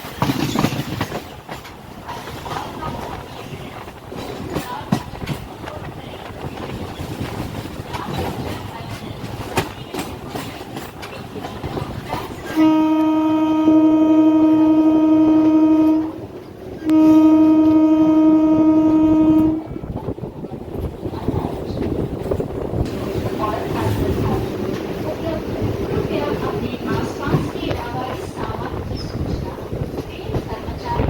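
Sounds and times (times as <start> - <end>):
wheel clatter on rails: 0.0 - 12.6, 19.9 - 31.0
train rumble: 0.0 - 31.0
train horn blasts: 12.5 - 19.8.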